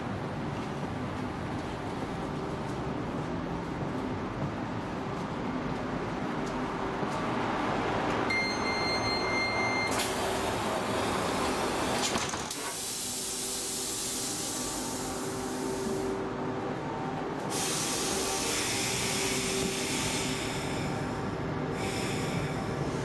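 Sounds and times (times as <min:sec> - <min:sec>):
steady train hum: 0:00.0 - 0:23.0
train doors closing with clatter: 0:06.4 - 0:16.0
air hissing: 0:12.6 - 0:16.1, 0:17.5 - 0:21.2.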